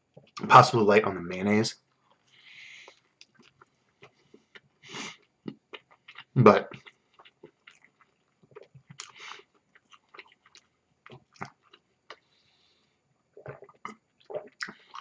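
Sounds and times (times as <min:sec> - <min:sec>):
person chewing with mouth smacks: 0:02.2 - 0:12.3, 0:13.4 - 0:15.0.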